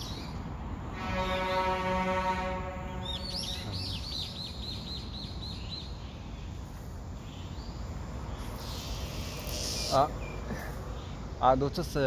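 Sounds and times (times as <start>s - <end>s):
bird chirping: 2.8s - 11.8s.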